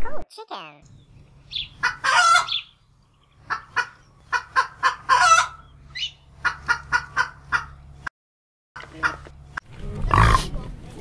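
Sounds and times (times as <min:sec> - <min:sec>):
bird squawking: 0:01.5 - 0:02.8, 0:03.4 - 0:07.8.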